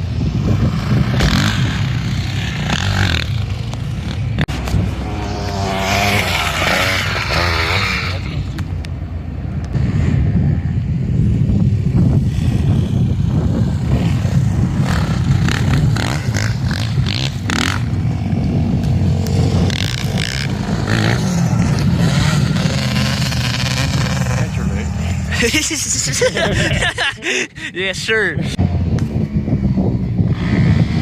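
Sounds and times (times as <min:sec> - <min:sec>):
tyre noise: 0:00.4 - 0:08.8.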